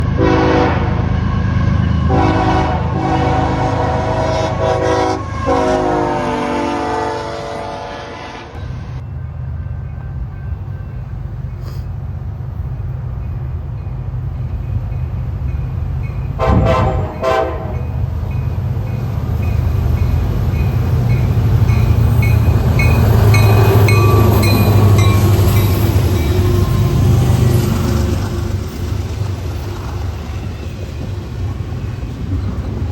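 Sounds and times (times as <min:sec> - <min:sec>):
diesel locomotive engine: 0:00.0 - 0:32.9
train rumbling past: 0:00.0 - 0:32.9
locomotive air horn blasts: 0:00.1 - 0:08.7, 0:16.4 - 0:17.9.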